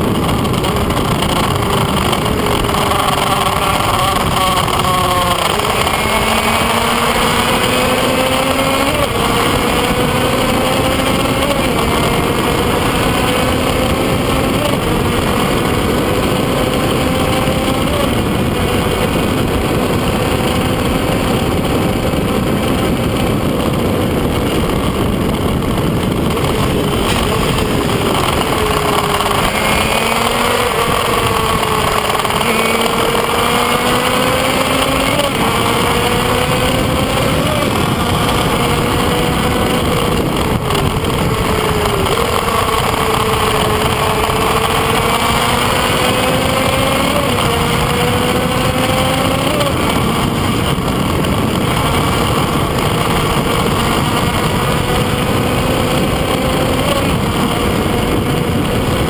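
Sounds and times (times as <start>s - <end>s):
heavy wind noise: 0.0s - 59.0s
motorcycle engine at full throttle: 0.0s - 59.0s.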